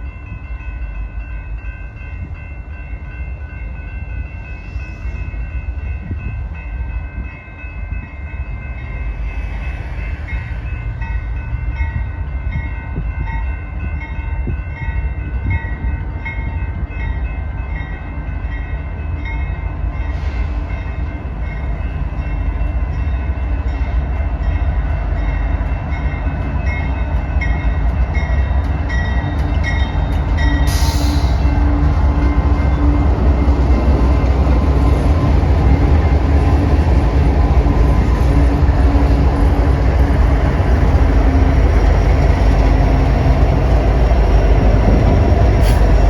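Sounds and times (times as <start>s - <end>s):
crossing warning bell dinging: 0.0s - 46.0s
train rumbling past: 0.0s - 46.0s
sharp hiss: 30.7s - 31.5s.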